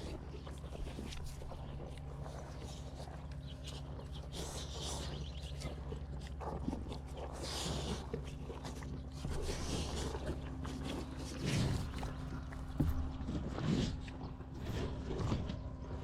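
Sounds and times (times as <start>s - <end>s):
cattle snuffling and breathing: 0.0s - 16.0s
steady low hum: 0.0s - 16.0s
feed rustling: 9.3s - 15.5s.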